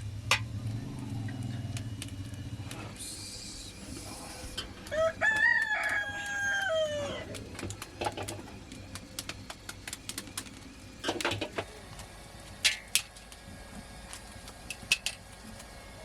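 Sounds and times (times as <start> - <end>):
rooster crowing: 4.8 - 7.4.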